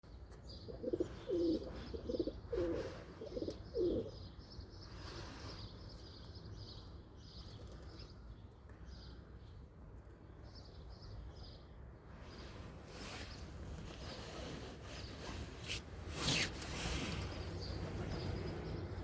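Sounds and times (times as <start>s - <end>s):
small birds chirping: 0.1s - 19.0s
pigeon cooing: 0.7s - 4.2s.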